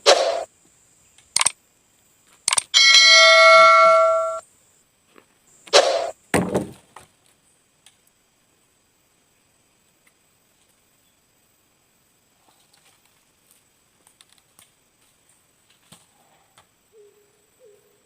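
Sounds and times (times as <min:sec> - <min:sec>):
bell-like ding: 0:02.8 - 0:04.4.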